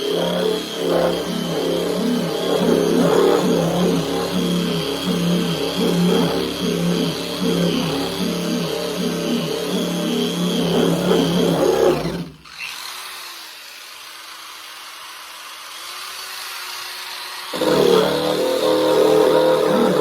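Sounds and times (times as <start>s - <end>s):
paint-stripping wheel grinding metal: 0.0s - 12.8s, 17.5s - 20.0s.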